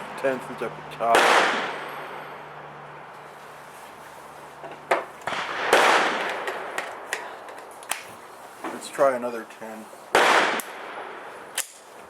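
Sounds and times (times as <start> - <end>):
gunshots echoing: 1.1 - 2.2, 5.2 - 7.1, 10.1 - 11.3
sharp gun click: 11.6 - 11.8.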